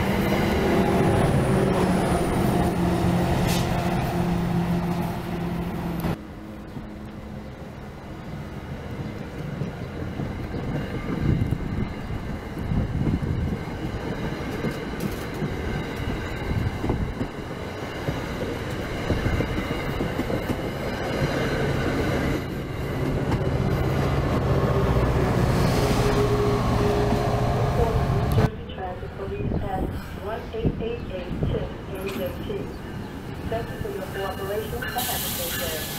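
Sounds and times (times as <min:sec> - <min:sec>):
low locomotive drone: 0:00.0 - 0:35.9
train wheels clattering on track: 0:09.0 - 0:23.9.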